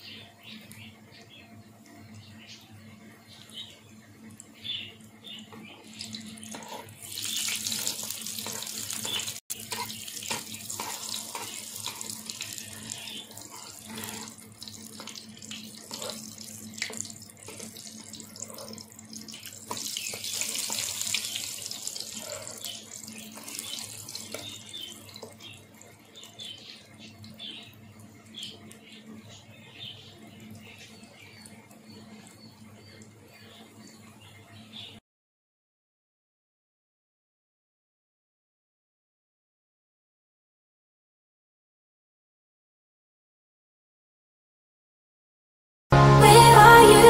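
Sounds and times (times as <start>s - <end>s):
pancakes sizzling in hot oil: 5.9s - 26.5s
fork clicking and scraping in pan: 7.8s - 14.4s.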